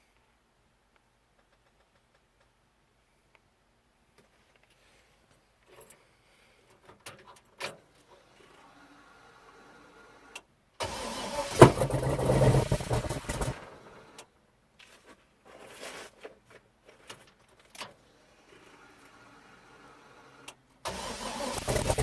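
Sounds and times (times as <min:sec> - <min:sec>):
engine running unevenly: 0:10.8 - 0:14.1, 0:20.9 - 0:22.0
engine cranking and firing: 0:10.8 - 0:14.2, 0:20.8 - 0:22.0.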